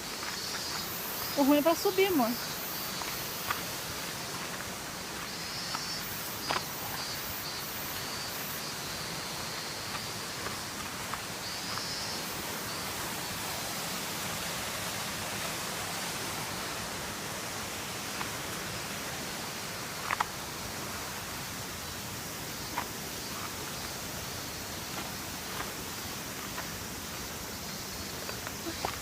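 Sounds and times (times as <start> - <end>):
waterfall rushing: 7.9 - 22.6.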